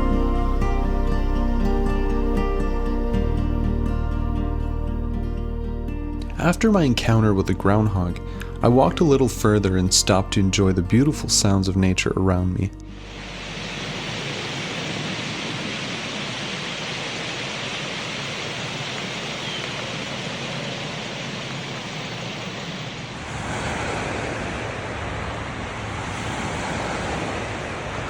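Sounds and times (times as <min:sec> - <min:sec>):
steady rushing noise: 0:12.9 - 0:28.0.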